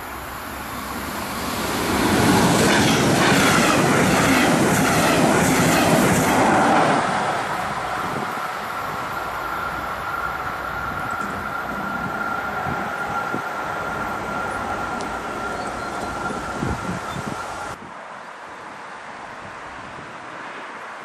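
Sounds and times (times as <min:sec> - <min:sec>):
train passing: 0:00.0 - 0:17.8
wheels clacking over rail joints: 0:02.0 - 0:17.7.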